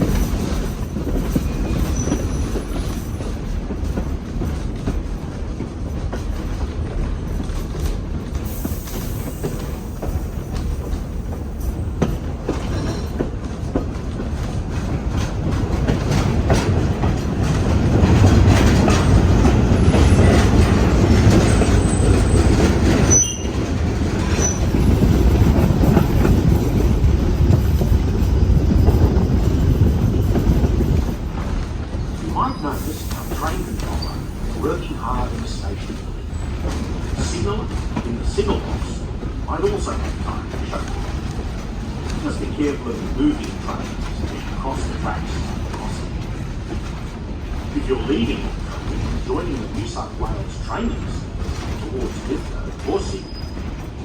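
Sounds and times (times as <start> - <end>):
wheels clicking over rail joints: 0.0 - 32.5
train wheels rumbling on rails: 0.0 - 54.0.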